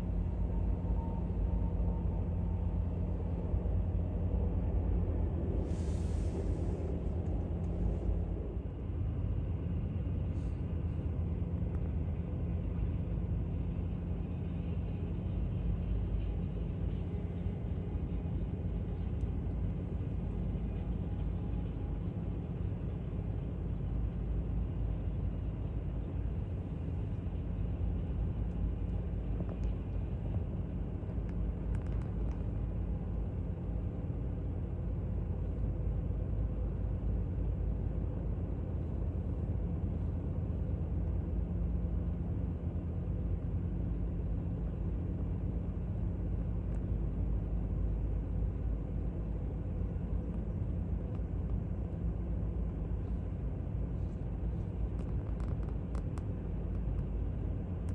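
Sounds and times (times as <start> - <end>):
jet engines rumbling: 0.0 - 11.7
faint steady hum: 0.0 - 57.9.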